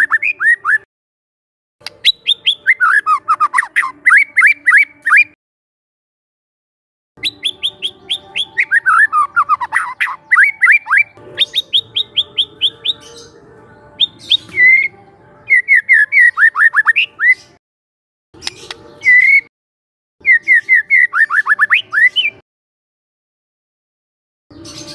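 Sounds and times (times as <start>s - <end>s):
songbird singing sweeping notes: 1.8s - 5.4s, 7.2s - 17.6s, 18.4s - 19.5s, 20.2s - 22.4s.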